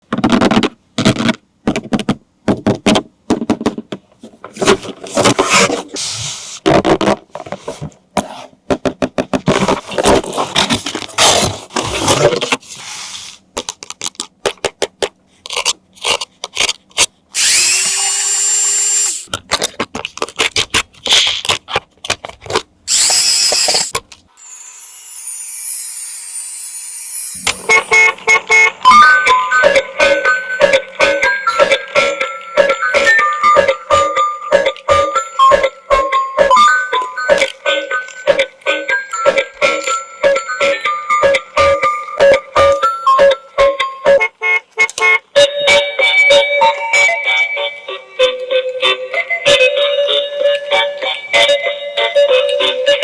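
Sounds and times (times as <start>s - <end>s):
plastic packaging clicks and crackles: 13.6s - 17.1s, 19.3s - 22.7s
toy car electric motor whirring: 17.4s - 19.3s, 22.9s - 28.2s.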